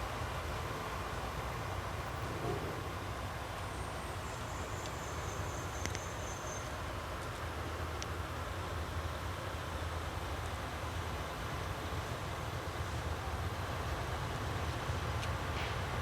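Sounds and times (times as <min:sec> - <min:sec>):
train rumbling along the line: 0:00.0 - 0:16.0
faint clicks: 0:05.8 - 0:06.1.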